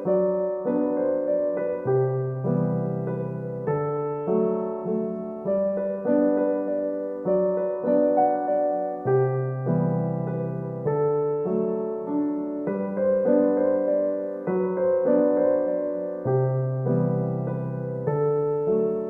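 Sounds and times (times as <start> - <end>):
slow gentle piano piece: 0.0 - 19.0.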